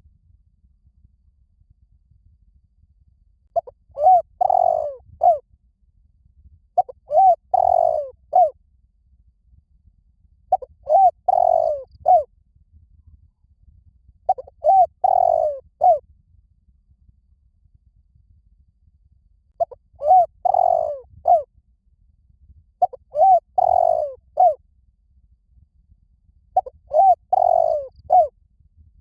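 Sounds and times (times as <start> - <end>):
dove cooing: 3.6 - 5.4, 6.8 - 8.5, 10.5 - 12.3, 14.3 - 16.0, 19.6 - 21.4, 22.8 - 24.6, 26.6 - 28.3.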